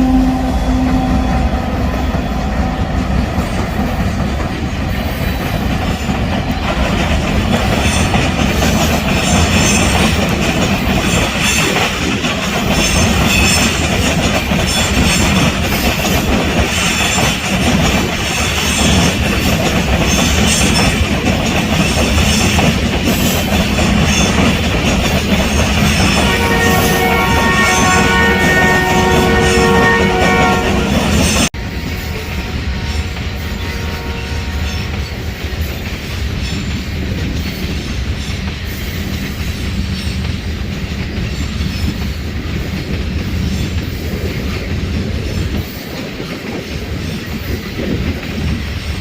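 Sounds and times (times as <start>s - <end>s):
high metallic wheel ringing: 0.0s - 38.8s
freight train rumble: 0.0s - 49.0s
train wheels clattering over joints: 2.1s - 33.4s, 34.6s - 49.0s.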